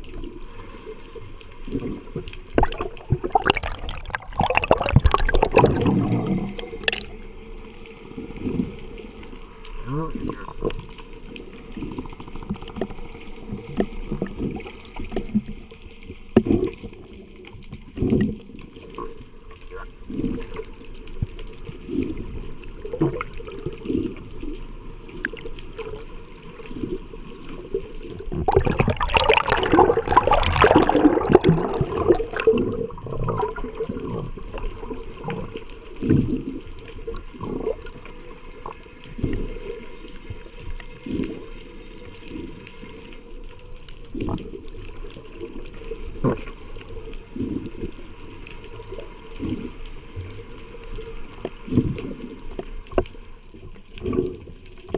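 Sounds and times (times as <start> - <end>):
water rushing and bubbling: 0.0 - 54.9
low thumps of moving water: 1.0 - 41.5.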